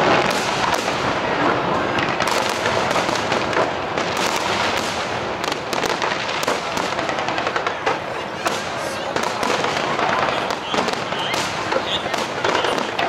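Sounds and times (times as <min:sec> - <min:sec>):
fireworks crackling and popping: 0:00.0 - 0:13.0.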